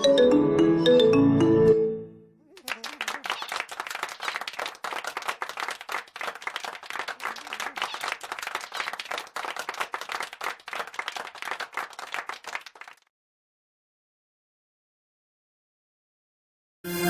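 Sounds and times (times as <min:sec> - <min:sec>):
crowd applauding: 0:02.5 - 0:13.1.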